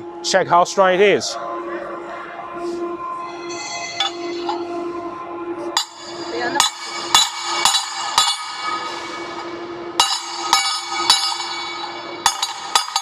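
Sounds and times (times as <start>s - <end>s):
hammer clanging on steel plate: 5.8s - 9.1s, 10.0s - 13.0s.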